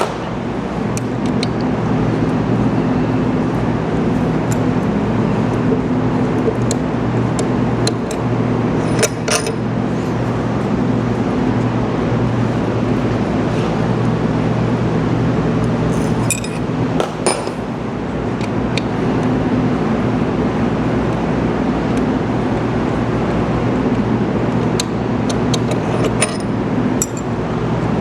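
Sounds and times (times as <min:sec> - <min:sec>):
low machine hum: 0:00.0 - 0:28.0
light metal clinks: 0:16.0 - 0:17.7, 0:25.6 - 0:27.4.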